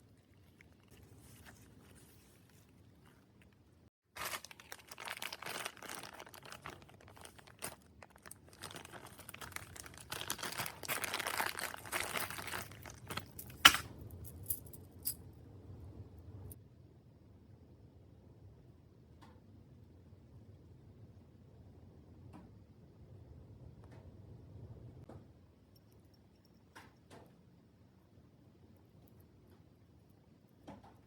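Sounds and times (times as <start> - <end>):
packaging crinkling and rustling: 0.8 - 13.9.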